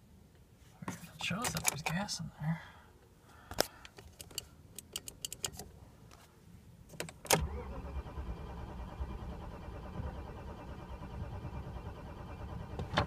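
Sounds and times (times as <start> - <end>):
starter cranking engine: 7.4 - 13.0.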